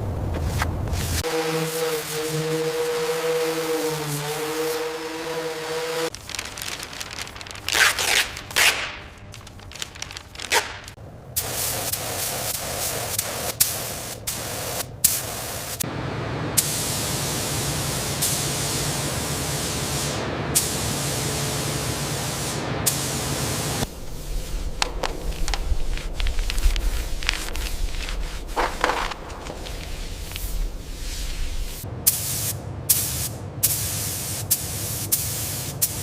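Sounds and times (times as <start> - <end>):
hissing spray: 0.9 - 15.8, 16.6 - 36.0
low hum: 23.8 - 32.0.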